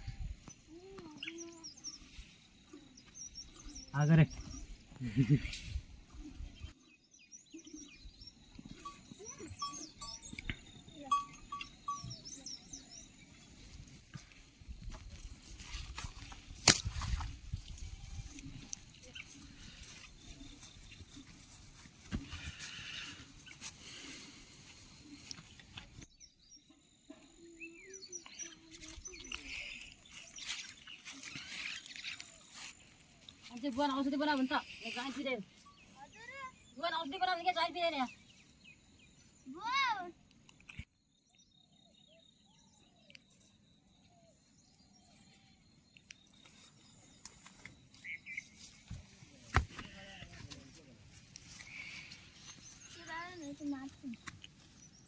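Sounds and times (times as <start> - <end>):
bird chirps: 0.2 - 5.5, 6.3 - 13.9, 25.1 - 48.9
high bird chirps: 6.6 - 13.4
farm animals calling: 8.6 - 12.8.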